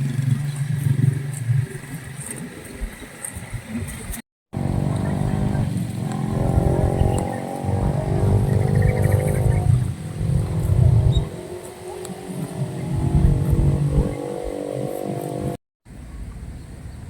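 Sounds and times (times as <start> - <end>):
engine running: 4.5 - 15.6.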